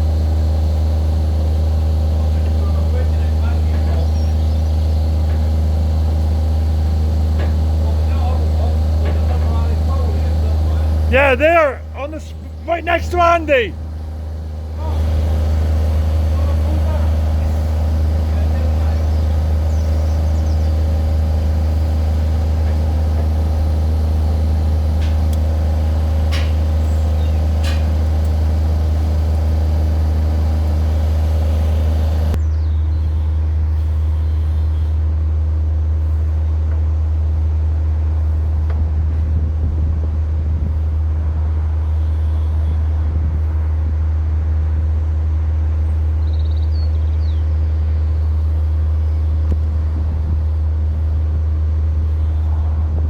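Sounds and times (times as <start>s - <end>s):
low engine-like rumble: 0.0s - 53.0s
higher hum: 4.4s - 32.4s.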